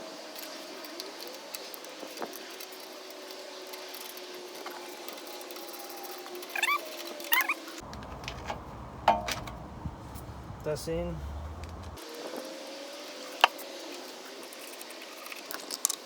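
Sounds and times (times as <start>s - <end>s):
short pitched animal calls: 6.5s - 7.6s.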